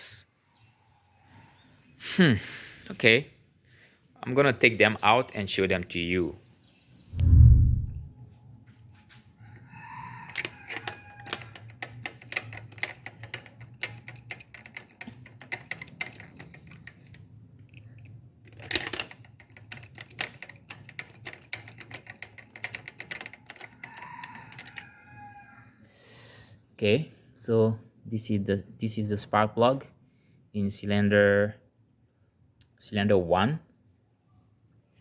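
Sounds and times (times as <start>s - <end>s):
socket ratchet clicking: 10.3s - 24.8s.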